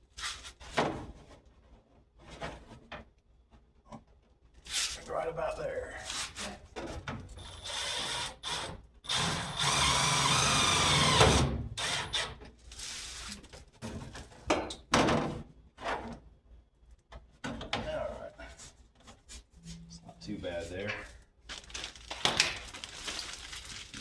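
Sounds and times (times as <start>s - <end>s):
power drill driving screw: 7.4s - 12.4s.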